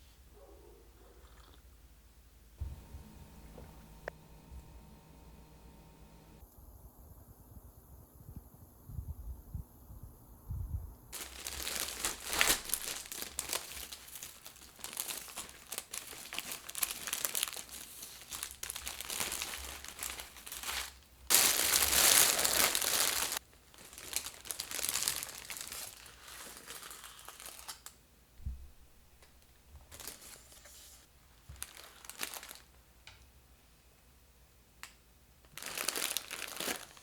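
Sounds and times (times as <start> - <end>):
wrapping material crumpling: 11.2 - 28.0, 29.9 - 32.8, 35.5 - 37.0.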